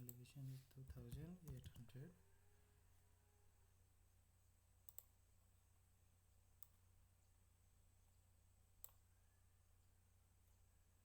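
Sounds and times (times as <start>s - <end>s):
computer mouse clicks: 4.8s - 5.1s, 8.8s - 9.0s.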